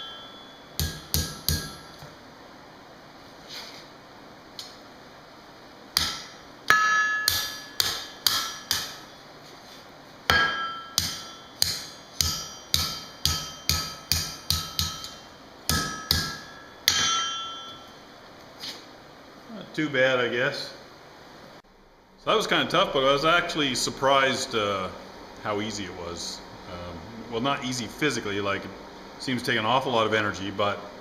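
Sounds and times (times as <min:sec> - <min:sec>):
anvil ringing: 0:00.0 - 0:02.0, 0:06.0 - 0:09.2, 0:10.3 - 0:18.0
hammer striking hot steel on anvil: 0:00.0 - 0:02.1, 0:06.0 - 0:09.2, 0:10.3 - 0:18.0.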